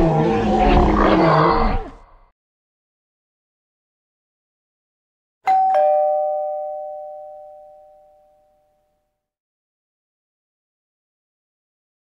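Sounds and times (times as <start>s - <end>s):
ding-dong doorbell chime: 5.5s - 9.1s.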